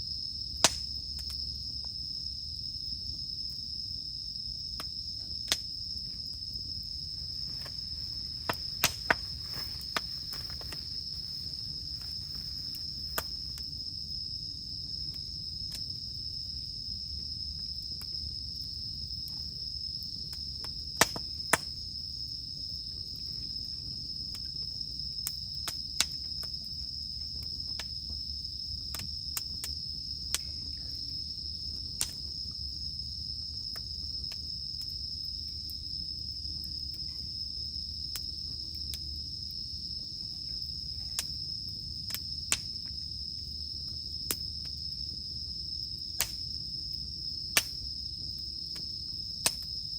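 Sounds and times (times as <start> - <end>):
cicadas droning: 0.0 - 49.9
campfire crackling and popping: 0.5 - 1.9, 4.6 - 16.8, 17.4 - 22.8, 23.5 - 32.7, 33.5 - 49.8.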